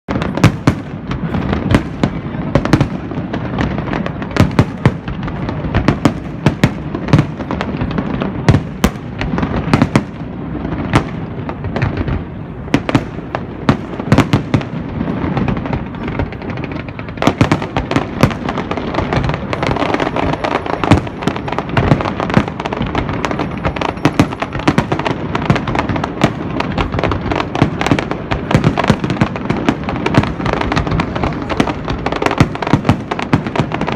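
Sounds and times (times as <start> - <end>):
firecrackers banging: 0.1 - 33.9
rumble of distant explosions: 0.1 - 33.9.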